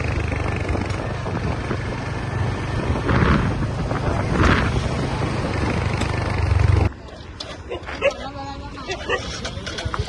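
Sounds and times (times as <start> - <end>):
wind buffeting microphone: 0.0 - 7.0
road noise: 0.0 - 10.0.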